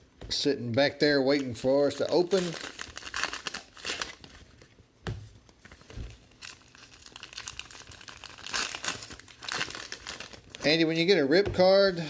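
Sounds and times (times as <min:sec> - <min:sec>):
plastic wrappers crinkling: 0:01.2 - 0:04.7, 0:05.6 - 0:11.2.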